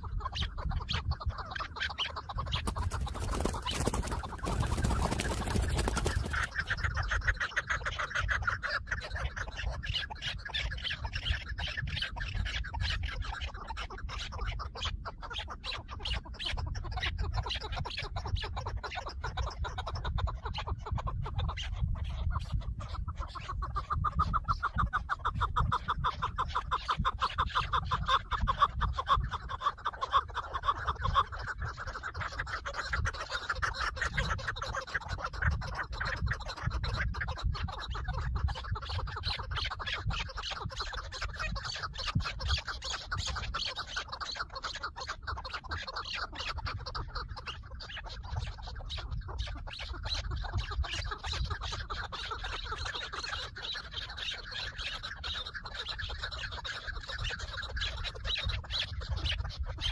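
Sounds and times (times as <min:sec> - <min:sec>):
partridge clucking calls: 0:00.0 - 0:59.9.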